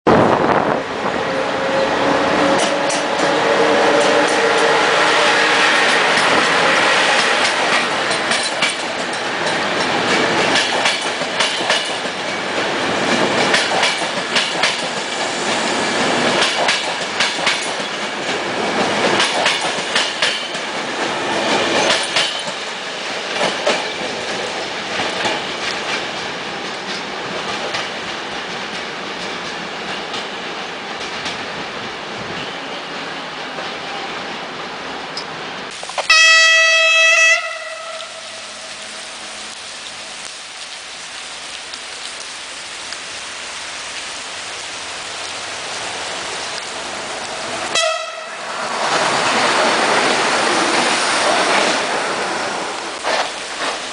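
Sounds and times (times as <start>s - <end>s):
train wheels clicking over rail joints: 2.5s - 4.9s, 5.5s - 33.8s, 48.7s - 53.9s.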